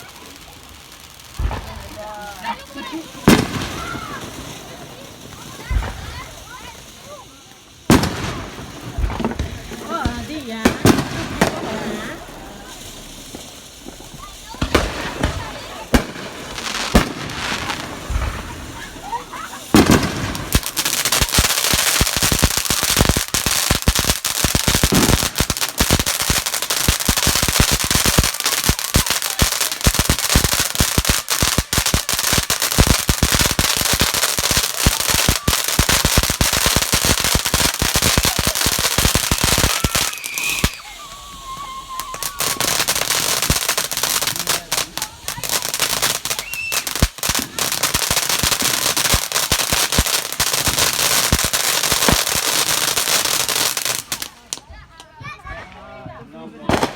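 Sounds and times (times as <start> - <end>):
firecrackers going off: 0.0 - 56.9.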